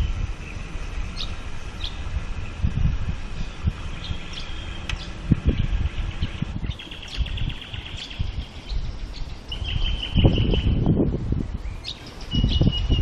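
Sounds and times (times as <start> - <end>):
birds chirping and calling: 0.0 - 13.0
high bird trill: 0.0 - 13.0
low rumbling: 0.0 - 13.0.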